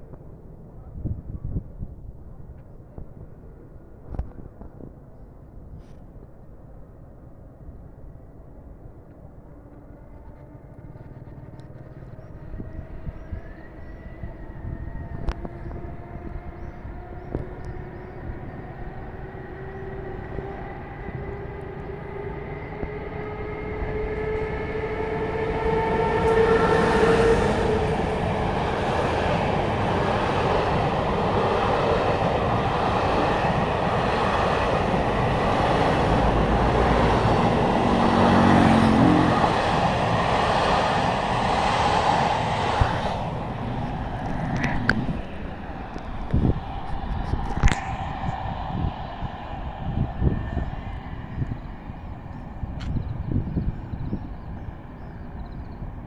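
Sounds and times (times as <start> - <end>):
electric locomotive whine: 7.0 - 56.0
train wheels on rails: 9.7 - 48.8.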